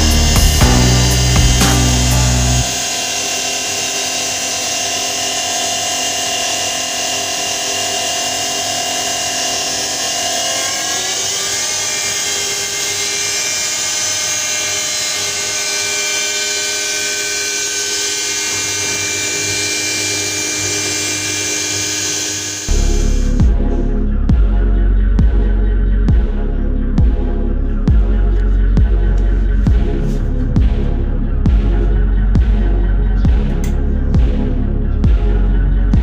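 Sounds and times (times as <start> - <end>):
electric motor whining: 0.0 - 23.7.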